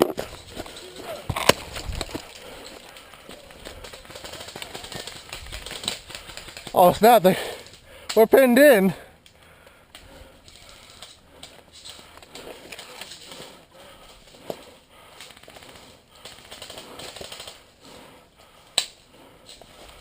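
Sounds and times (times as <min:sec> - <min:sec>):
sharp cracks: 0:00.0 - 0:08.2, 0:14.3 - 0:17.7.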